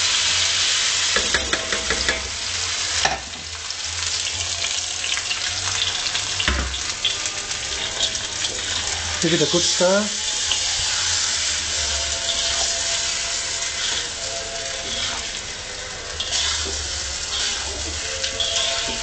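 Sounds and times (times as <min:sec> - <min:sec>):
chicken sizzling in hot oil: 0:00.0 - 0:19.0
spoon scraping and knocking pan: 0:01.1 - 0:02.4, 0:12.3 - 0:15.4, 0:16.2 - 0:19.0.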